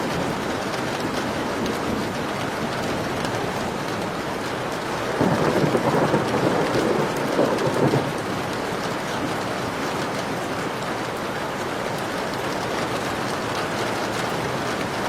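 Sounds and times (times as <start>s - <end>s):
thunder rumbling: 0.0s - 9.4s
heavy rain: 0.0s - 15.0s.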